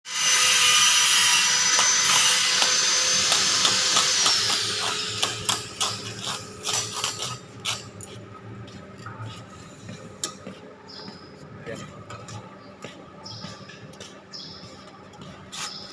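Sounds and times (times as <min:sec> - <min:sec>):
power tool whining: 0:00.1 - 0:07.2.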